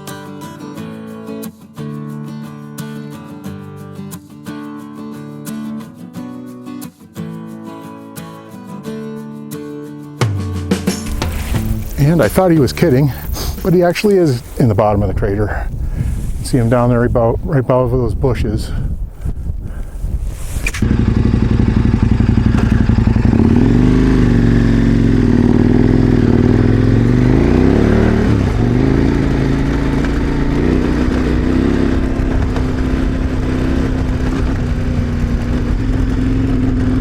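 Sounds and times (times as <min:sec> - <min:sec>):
motorcycle engine running: 0:10.9 - 0:13.7, 0:20.7 - 0:37.0.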